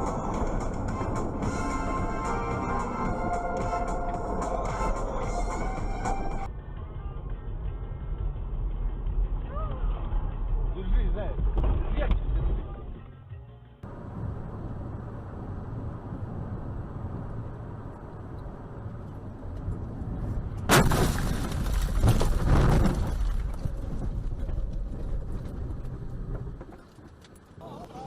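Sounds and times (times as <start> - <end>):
vehicle and road rumble: 0.0 - 28.0
car collision bang: 20.7 - 23.4.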